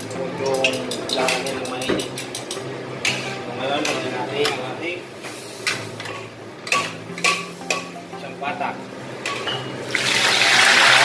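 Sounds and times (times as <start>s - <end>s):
tongs clinking on plate and wok: 0.4s - 4.6s, 5.6s - 8.0s, 9.2s - 9.8s
meat sizzling in hot oil: 9.8s - 11.0s.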